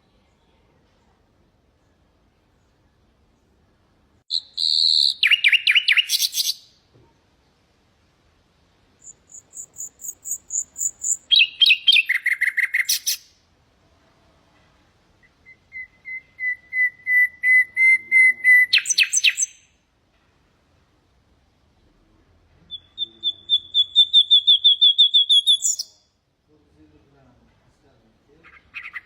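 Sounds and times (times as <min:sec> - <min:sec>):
nightingale singing: 0:04.3 - 0:06.8, 0:09.0 - 0:13.4, 0:15.2 - 0:19.8, 0:22.6 - 0:26.2, 0:28.4 - 0:29.0.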